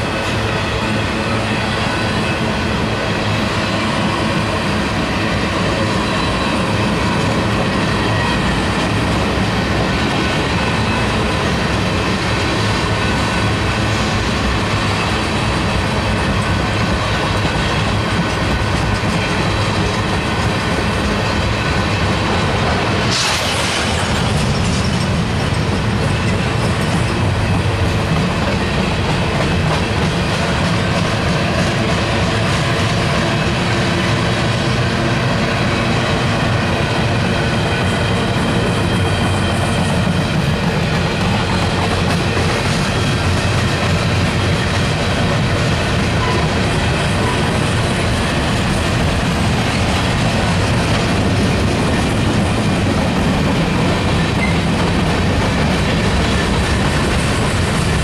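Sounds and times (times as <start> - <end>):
train wheels on rails: 0.0 - 58.0
brief high burst of noise: 23.1 - 24.3.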